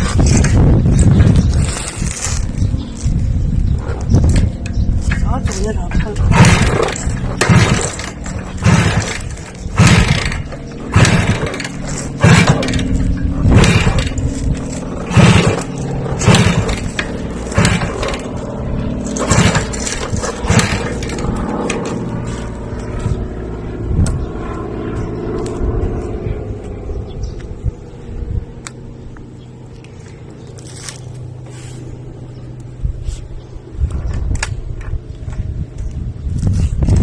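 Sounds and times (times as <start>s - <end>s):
motor running: 0.0s - 25.7s.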